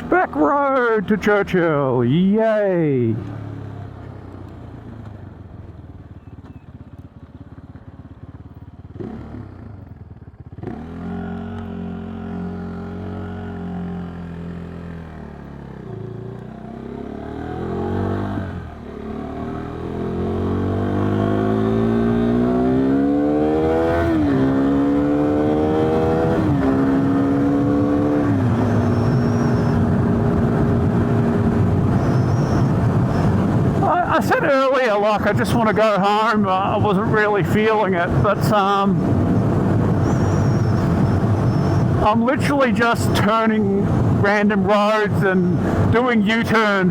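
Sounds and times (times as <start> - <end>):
motorcycle engine accelerating: 3.2 - 34.4, 35.1 - 44.4
wind rush: 23.6 - 34.5, 35.1 - 44.7.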